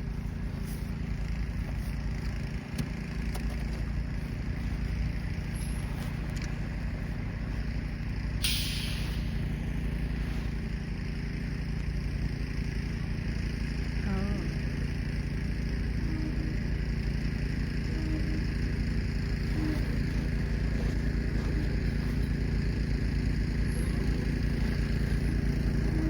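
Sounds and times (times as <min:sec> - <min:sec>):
engine running steadily: 0:00.0 - 0:26.0
brief hissing rush: 0:08.4 - 0:09.5.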